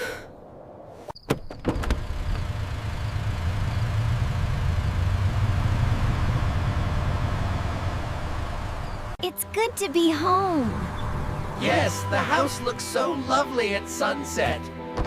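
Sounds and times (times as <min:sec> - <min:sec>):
car engine running: 0:01.8 - 0:12.8.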